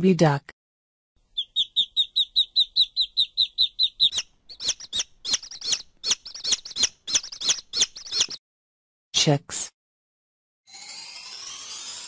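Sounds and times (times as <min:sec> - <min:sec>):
duckling peeping: 0:01.2 - 0:08.4.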